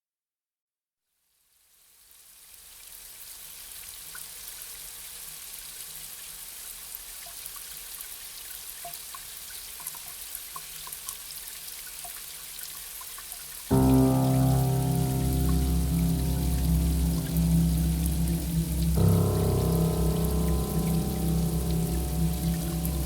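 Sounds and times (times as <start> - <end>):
light rain falling: 13.7 - 23.0
water drips: 13.7 - 23.0.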